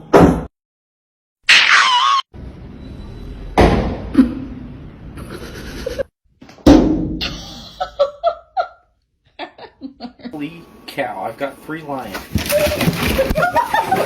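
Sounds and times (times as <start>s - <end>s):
loud thumps: 6.6s - 7.3s.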